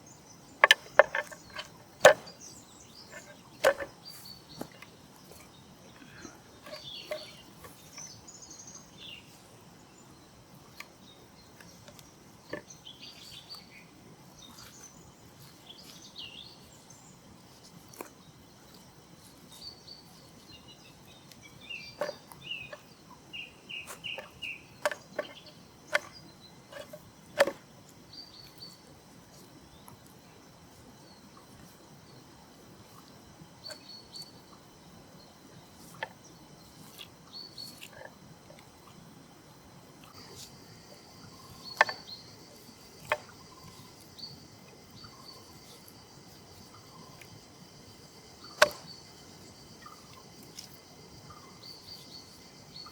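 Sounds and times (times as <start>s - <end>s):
wild birds chirping: 0.0s - 52.9s
sharp knocks or clicks: 0.6s - 2.3s, 3.1s - 3.9s, 48.6s - 48.9s.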